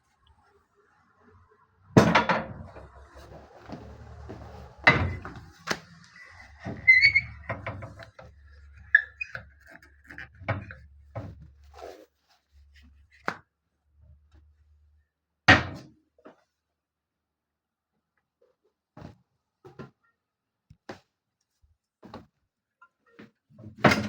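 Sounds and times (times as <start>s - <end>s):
metal clanks and knocks: 2.0s - 9.2s
hinge squeaks: 4.7s - 10.8s.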